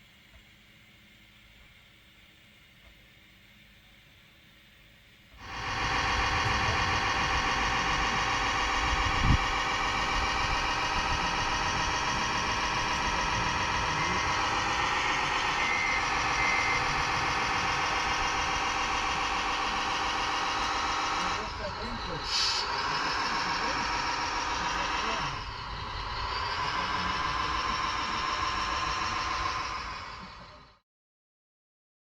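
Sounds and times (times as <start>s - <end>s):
model truck diesel engine sound: 5.4s - 30.8s.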